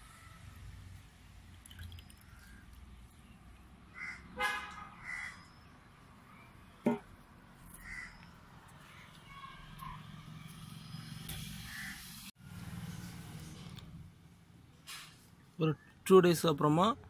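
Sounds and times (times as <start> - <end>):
birds calling: 2.0 - 5.9, 10.9 - 12.1.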